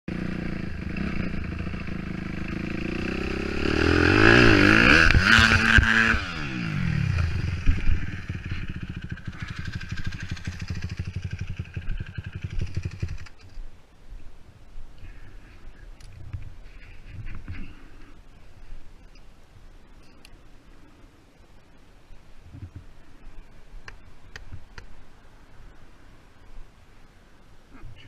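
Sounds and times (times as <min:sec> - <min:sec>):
dirt bike engine revving: 0:00.1 - 0:13.4.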